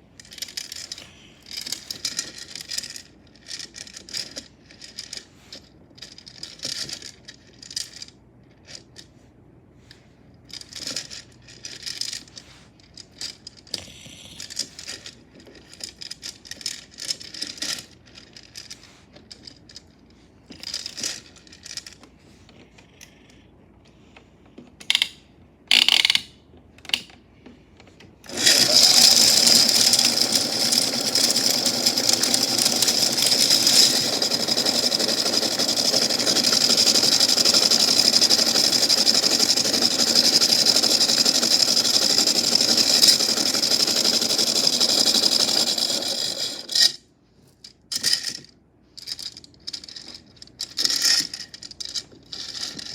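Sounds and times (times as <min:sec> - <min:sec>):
toy washing machine motor running: 0:00.2 - 0:08.1, 0:28.2 - 0:47.0.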